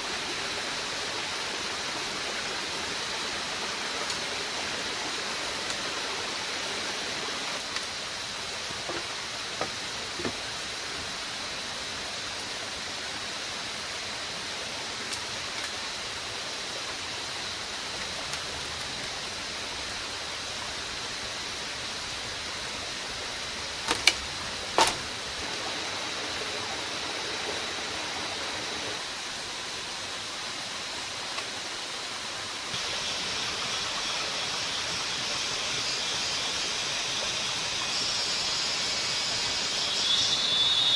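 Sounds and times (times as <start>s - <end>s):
high hiss: 0.0s - 40.9s
rainforest ambience rushing: 0.0s - 40.9s
thin high tone: 37.8s - 40.9s.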